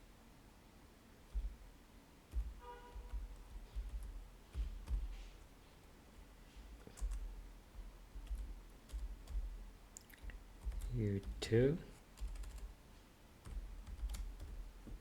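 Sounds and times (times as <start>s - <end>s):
typing on computer keyboard: 2.3s - 5.2s, 6.8s - 11.4s, 12.2s - 12.7s, 13.4s - 14.6s.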